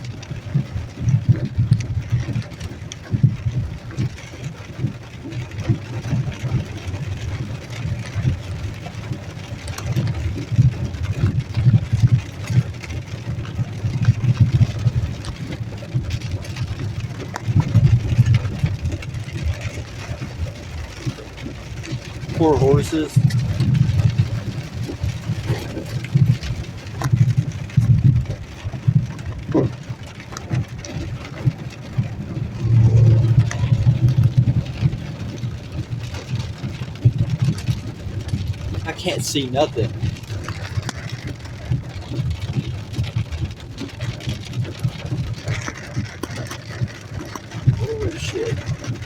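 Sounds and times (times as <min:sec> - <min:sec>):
engine and road rumble: 0:00.0 - 0:49.0
hailstones hitting car: 0:00.0 - 0:49.0.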